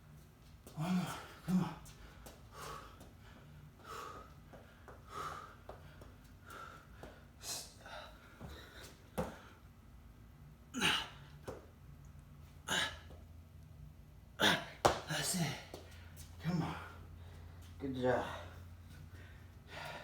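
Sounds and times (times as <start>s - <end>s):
person breathing hard: 0.7s - 9.6s, 14.4s - 20.0s.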